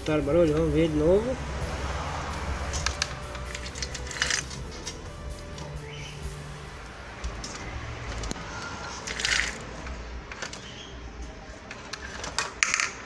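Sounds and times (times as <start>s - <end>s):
metal scrape: 0.0s - 7.7s
clutch shaft grinding: 0.0s - 11.3s.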